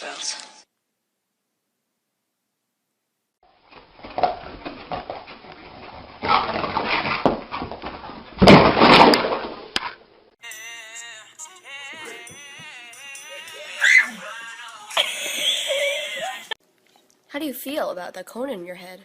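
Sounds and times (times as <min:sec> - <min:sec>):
music: 0:10.4 - 0:16.5.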